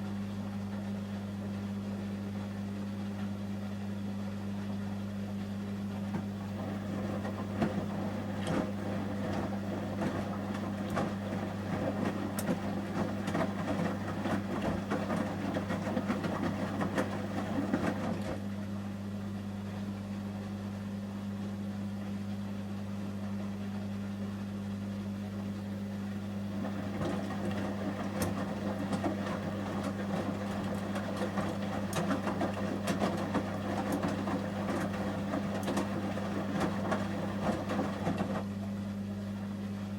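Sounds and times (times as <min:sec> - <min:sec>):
washing machine drum tumbling clothes: 0:05.3 - 0:19.3, 0:25.4 - 0:39.9.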